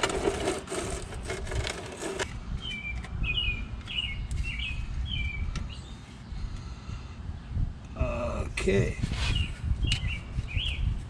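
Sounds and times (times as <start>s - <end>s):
small bird chirping: 2.2s - 6.8s, 9.3s - 11.0s.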